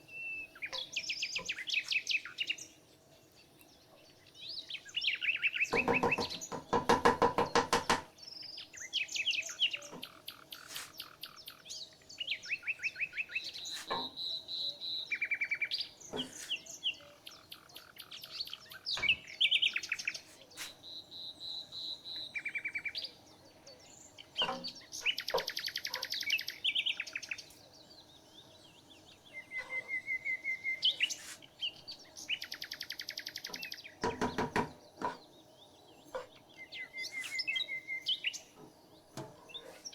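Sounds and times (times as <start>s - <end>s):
songbirds singing and chirping: 0.0s - 39.9s
loud rapid rattling bird chatter: 5.7s - 8.1s.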